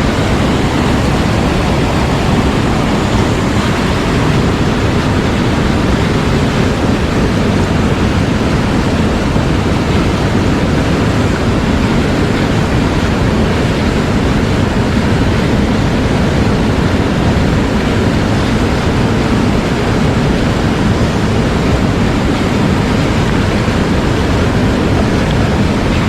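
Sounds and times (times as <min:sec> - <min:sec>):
rushing mountain stream: 0:00.0 - 0:26.0.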